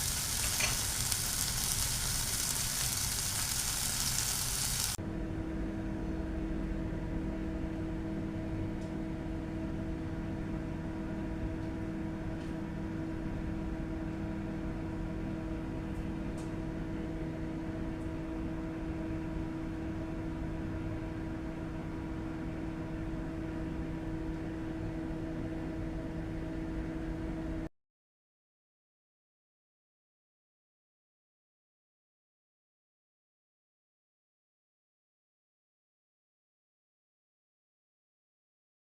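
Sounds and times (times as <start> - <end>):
machine hum: 0.0 - 27.7.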